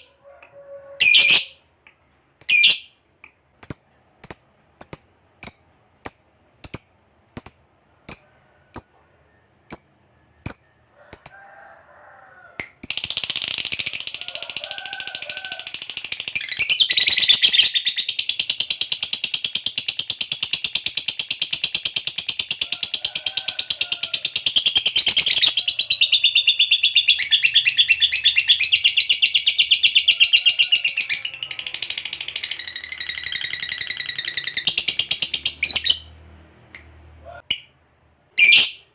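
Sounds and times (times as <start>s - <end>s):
lovebird chirping and trilling: 1.0s - 1.6s, 2.4s - 9.0s, 9.7s - 11.3s, 15.7s - 22.6s, 24.3s - 36.1s, 38.4s - 38.9s.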